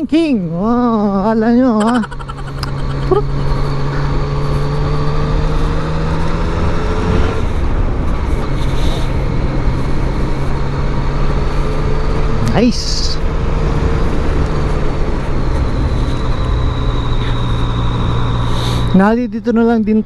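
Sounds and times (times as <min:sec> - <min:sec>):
motorcycle engine cruising: 0:00.0 - 0:20.0.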